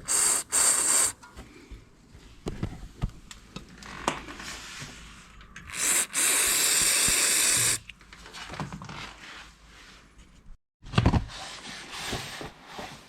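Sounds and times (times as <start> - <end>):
aerosol spray hissing: 0.0 - 1.2, 5.7 - 7.8.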